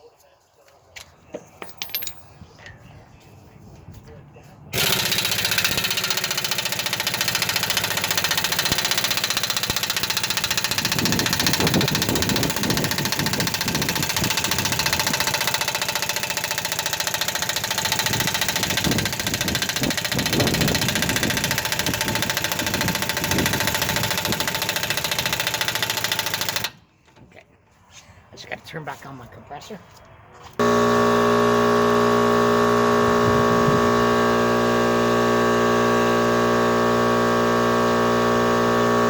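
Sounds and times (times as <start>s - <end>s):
air impact wrench rattling: 4.8s - 26.9s.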